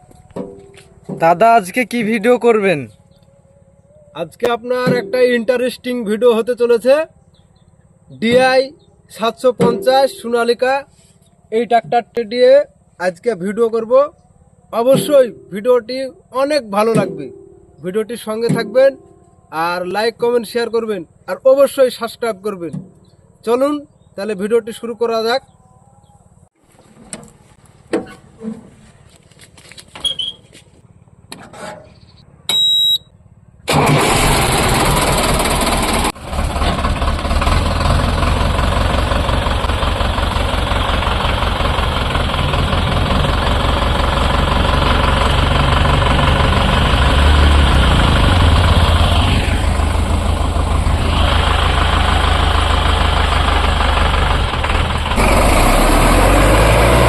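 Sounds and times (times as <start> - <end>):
tractor diesel engine: 0.0 - 24.9, 26.6 - 57.0.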